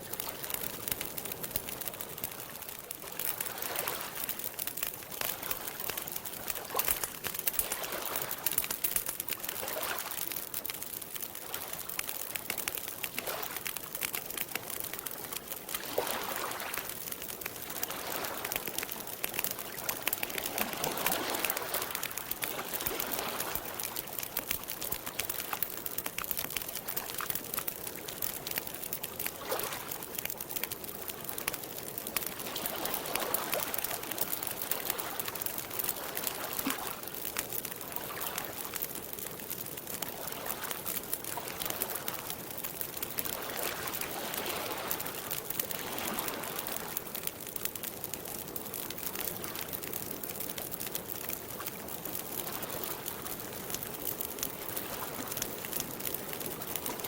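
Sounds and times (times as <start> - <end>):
campfire crackling: 0.0 - 57.0
lake water lapping: 19.7 - 24.2.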